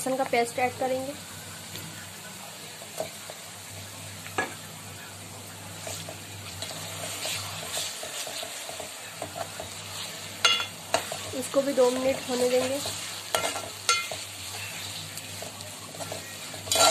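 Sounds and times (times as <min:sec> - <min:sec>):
paste sizzling in hot oil: 0:00.0 - 0:16.9
ladle scraping pot: 0:16.0 - 0:16.9.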